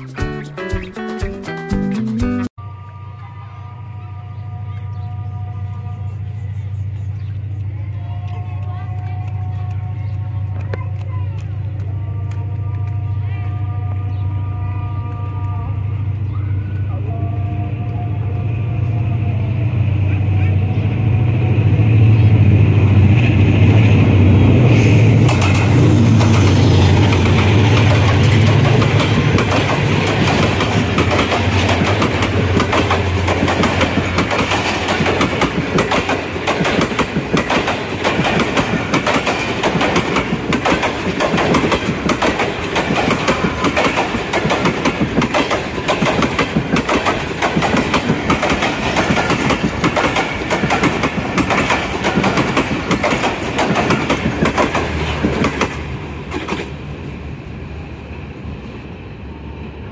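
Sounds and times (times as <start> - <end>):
diesel locomotive engine droning: 2.6 - 59.9
wheels clicking over rail joints: 25.2 - 56.8.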